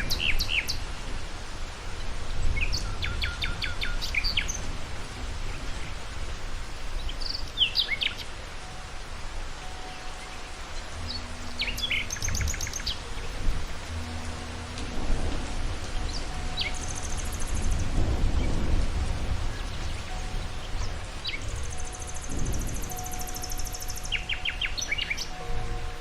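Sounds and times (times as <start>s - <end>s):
birds chirping: 0.0s - 0.9s, 5.4s - 26.0s
steady rain falling: 0.0s - 26.0s
low rumble: 10.6s - 24.8s.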